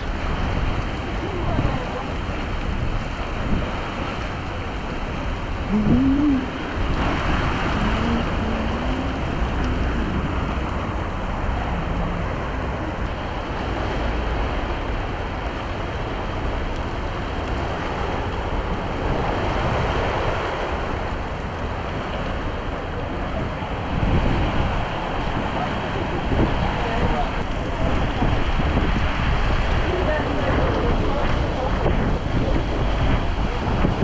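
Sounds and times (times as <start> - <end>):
heavy rain on deck: 0.0 - 34.0
running water: 0.0 - 34.0
low rumble: 1.6 - 34.0.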